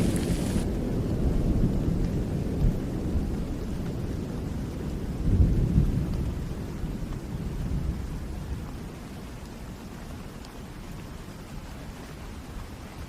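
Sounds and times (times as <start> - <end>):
thunder rumbling: 0.0 - 3.4
rain falling: 0.0 - 13.0.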